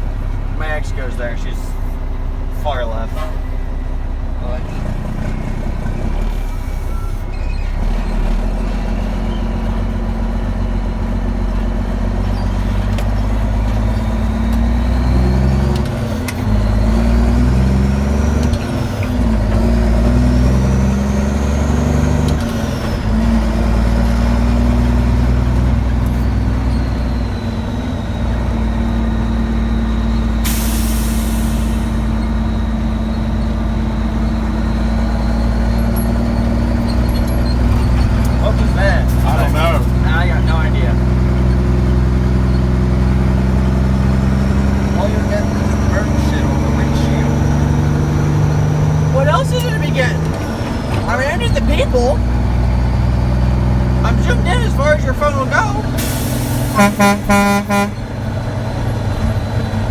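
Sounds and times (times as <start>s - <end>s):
dump truck engine running: 0.0s - 59.9s
air brake hiss: 30.4s - 32.1s, 56.0s - 57.0s.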